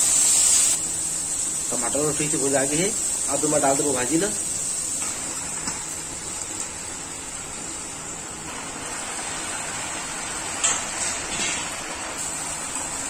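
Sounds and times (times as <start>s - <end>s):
greens sizzling in hot oil: 0.0s - 13.0s.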